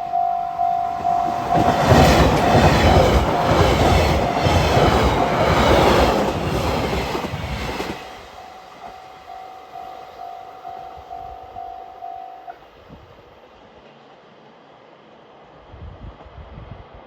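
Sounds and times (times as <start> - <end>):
level crossing warning bell: 0.0 - 6.1, 8.2 - 12.6
train wheels clacking over rail joints: 0.9 - 9.0.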